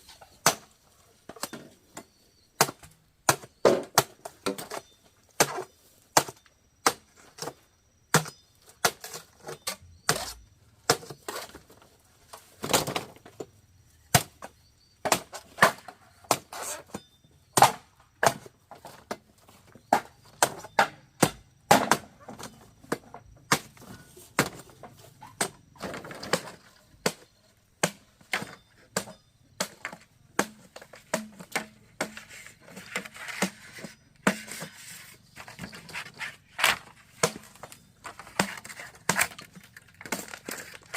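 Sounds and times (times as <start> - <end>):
hand tools striking wood: 25.3 - 35.7.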